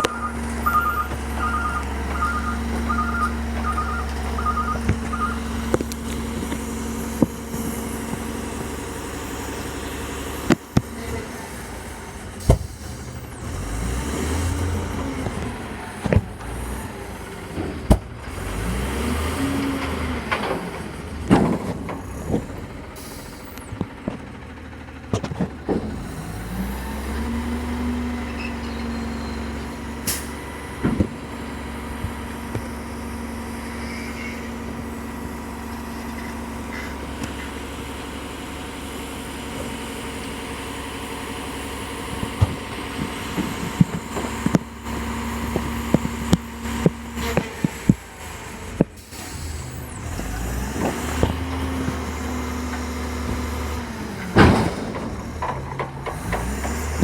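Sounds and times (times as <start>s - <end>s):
engine whine: 0.0s - 57.0s
truck engine running: 0.0s - 57.0s
metal clanks and bangs: 54.2s - 57.0s.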